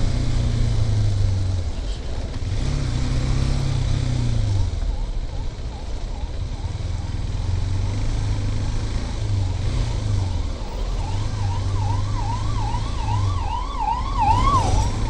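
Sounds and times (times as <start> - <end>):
motorcycle engine drone: 0.0 - 15.0
emergency siren warbling: 4.6 - 7.3, 9.3 - 15.0.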